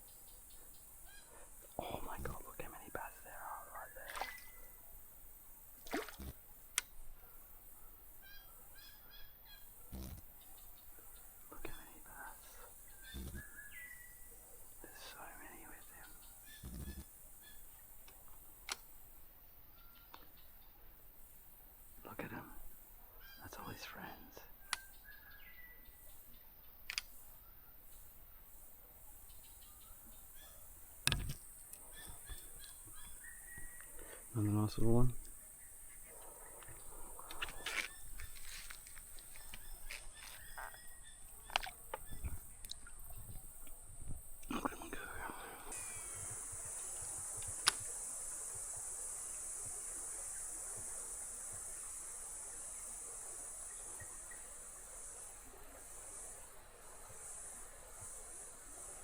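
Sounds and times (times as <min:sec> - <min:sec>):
bird chirping: 0:00.0 - 0:05.0, 0:06.2 - 0:18.8, 0:19.7 - 0:20.8, 0:23.1 - 0:28.2, 0:28.9 - 0:47.1
sharp click: 0:47.4 - 0:47.9.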